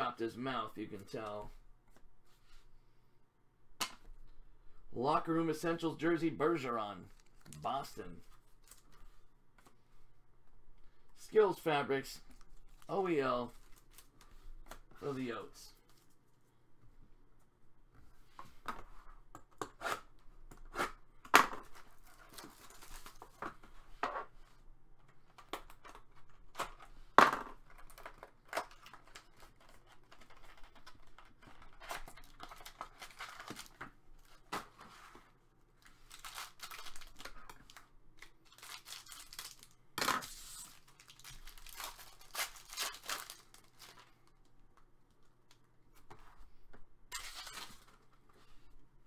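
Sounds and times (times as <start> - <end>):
card pack wrappers tearing: 27.7 - 33.8, 36.0 - 44.1.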